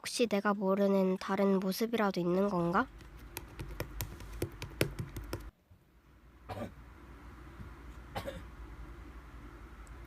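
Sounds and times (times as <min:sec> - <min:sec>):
cough-like throat sound: 0:06.5 - 0:06.8, 0:08.1 - 0:08.5.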